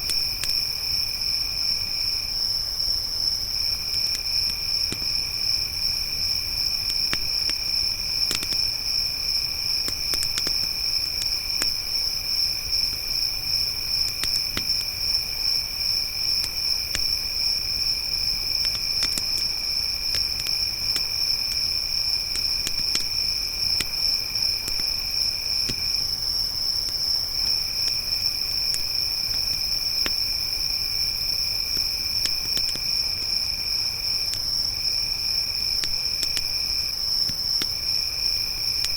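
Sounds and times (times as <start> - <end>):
crickets chirping: 0.0 - 38.9
campfire crackling: 2.5 - 38.9.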